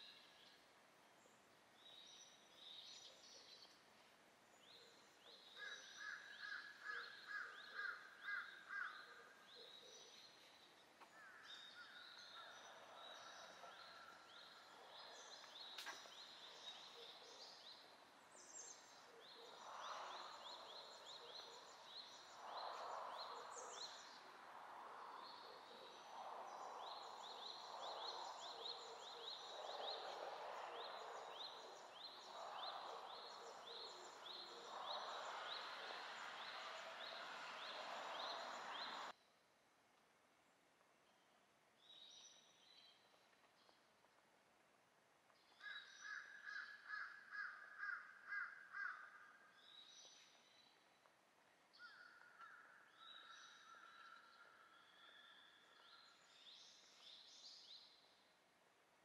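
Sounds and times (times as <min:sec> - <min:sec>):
songbirds chirping: 0:00.0 - 0:59.0
soft rushing noise: 0:19.6 - 0:39.1.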